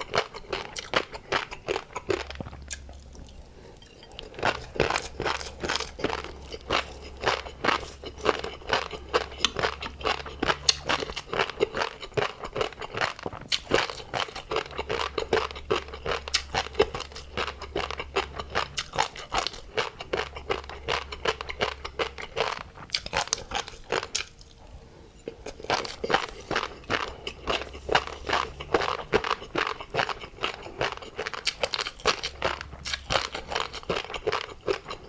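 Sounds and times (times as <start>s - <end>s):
crunchy chewing: 0.0s - 35.0s.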